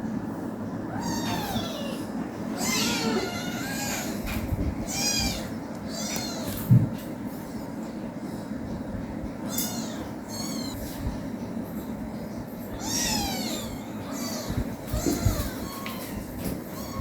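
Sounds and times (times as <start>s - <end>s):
kitten mewing: 0.9s - 4.2s.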